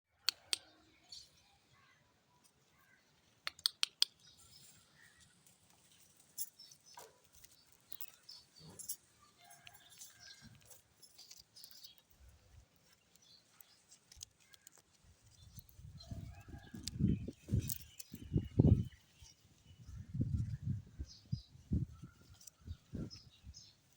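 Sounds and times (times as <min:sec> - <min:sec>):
parakeet chirps and clicks: 0:00.2 - 0:00.8, 0:03.4 - 0:04.4.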